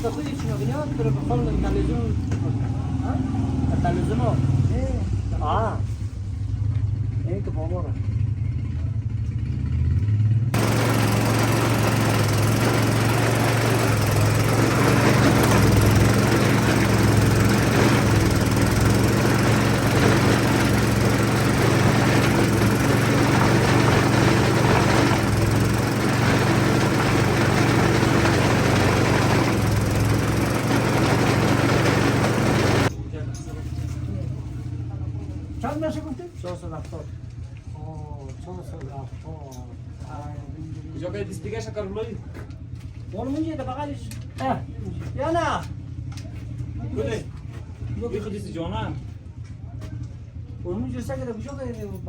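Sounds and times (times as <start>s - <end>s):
engine humming: 10.6s - 32.9s.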